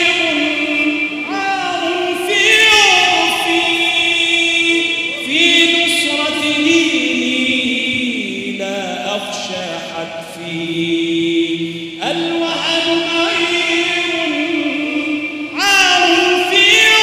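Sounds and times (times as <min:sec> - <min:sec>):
choir singing without instruments: 0:00.0 - 0:17.0.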